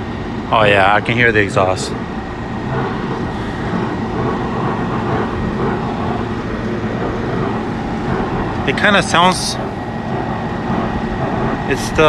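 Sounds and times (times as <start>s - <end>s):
ventilation equipment droning: 0.0s - 12.0s.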